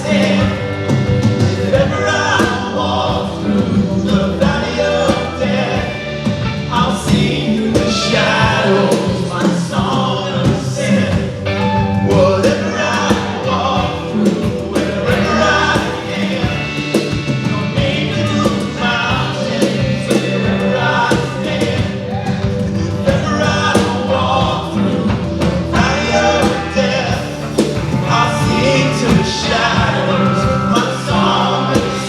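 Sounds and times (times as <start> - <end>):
drums: 0.0 - 32.0
people singing: 0.0 - 32.0
worship band playing: 0.0 - 32.0.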